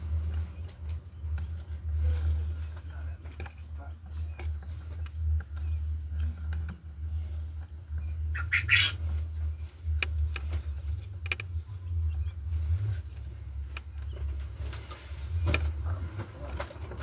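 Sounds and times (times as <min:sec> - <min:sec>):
steady low hum: 0:00.0 - 0:16.6
quail chirping: 0:07.1 - 0:10.0
small clicks and knocks: 0:10.0 - 0:11.6.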